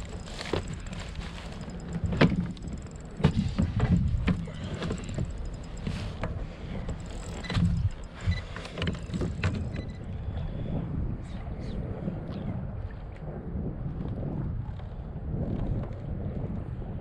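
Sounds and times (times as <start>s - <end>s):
wind rumble on microphone: 0.0s - 17.0s
knocks and clunks on a kayak: 0.1s - 10.5s.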